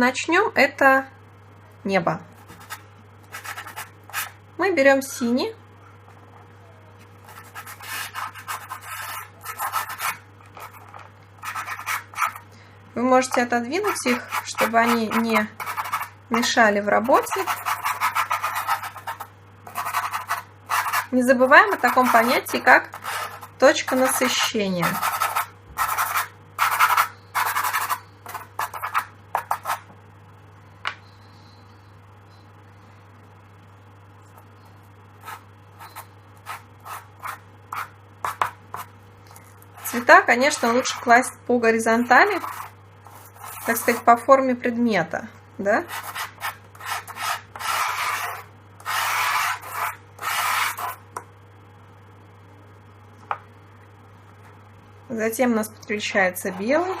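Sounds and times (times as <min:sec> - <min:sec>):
pastel scratching on paper: 0:02.5 - 0:04.4, 0:07.3 - 0:12.4, 0:13.8 - 0:16.1, 0:17.0 - 0:21.1, 0:21.7 - 0:29.8, 0:35.2 - 0:38.9, 0:39.8 - 0:41.1, 0:42.3 - 0:44.1, 0:45.8 - 0:51.0.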